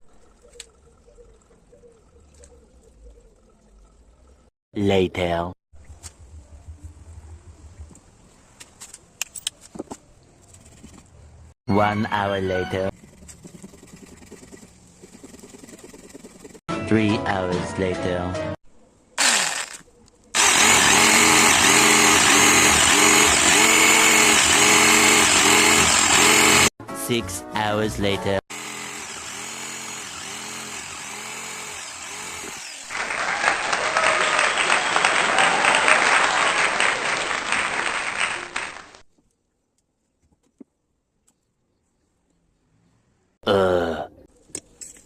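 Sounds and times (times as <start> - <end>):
motorised power tool running: 19.2 - 19.8, 20.4 - 26.7, 28.5 - 33.0
crowd applause: 32.9 - 39.0.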